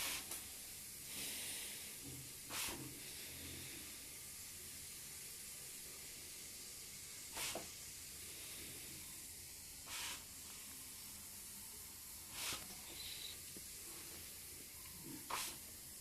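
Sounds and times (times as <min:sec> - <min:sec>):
cat hissing: 0:02.5 - 0:02.8, 0:07.3 - 0:07.7, 0:09.8 - 0:10.3, 0:12.3 - 0:13.4, 0:15.2 - 0:15.6.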